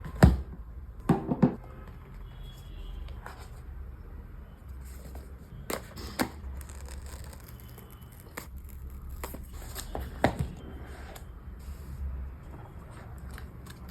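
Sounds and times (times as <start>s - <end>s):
packaging rustling: 5.7s - 10.1s.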